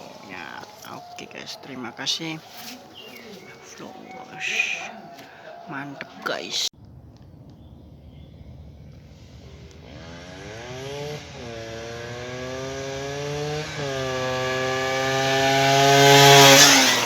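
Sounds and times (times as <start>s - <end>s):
motorcycle accelerating through gears: 7.6s - 17.0s.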